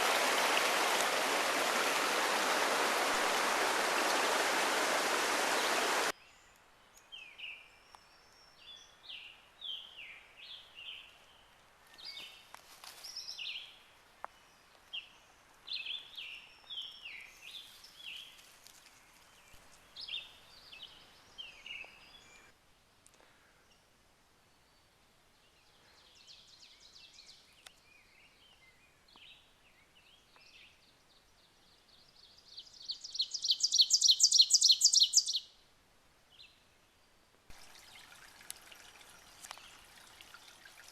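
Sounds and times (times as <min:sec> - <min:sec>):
songbirds singing: 0:00.9 - 0:22.5, 0:24.4 - 0:35.5, 0:36.3 - 0:40.9
loud fast bird trill: 0:33.3 - 0:35.4.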